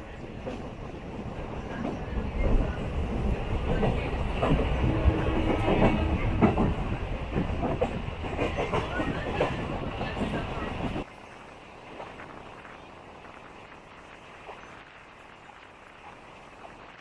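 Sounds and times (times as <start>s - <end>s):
train rumbling: 0.0s - 17.0s
wheels clacking over rail joints: 1.7s - 11.1s.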